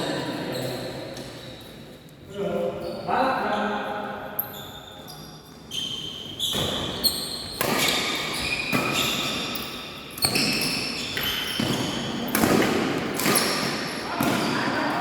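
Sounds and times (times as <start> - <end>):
shoes squeaking on court floor: 0.0 - 15.0
rackets hitting shuttlecock: 6.5 - 15.0.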